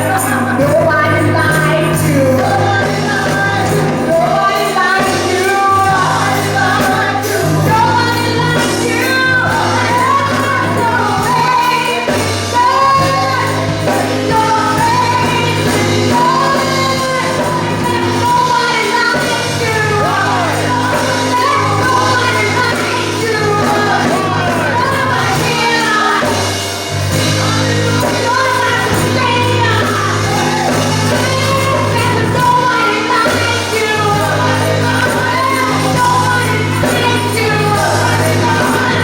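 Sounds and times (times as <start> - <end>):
gospel singing: 0.0 - 39.0.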